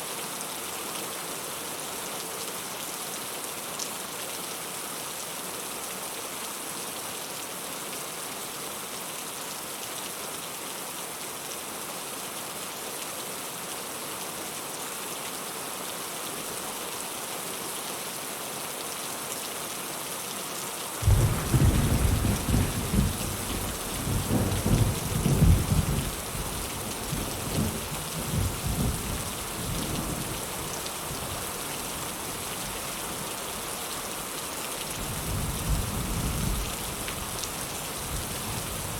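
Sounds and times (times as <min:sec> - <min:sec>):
rolling thunder: 0:21.0 - 0:26.2
heavy rain falling: 0:21.0 - 0:38.9.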